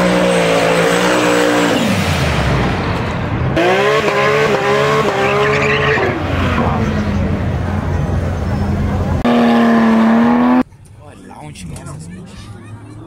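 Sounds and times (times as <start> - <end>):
sports car engine at high revs: 3.5 - 7.9, 8.7 - 10.6.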